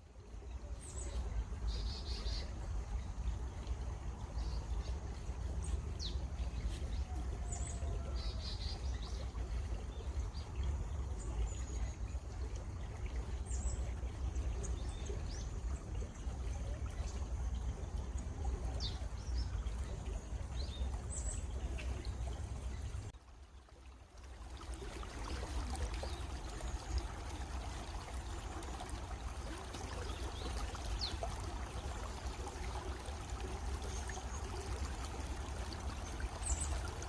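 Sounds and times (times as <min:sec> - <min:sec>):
stream water running: 0:00.0 - 0:37.0.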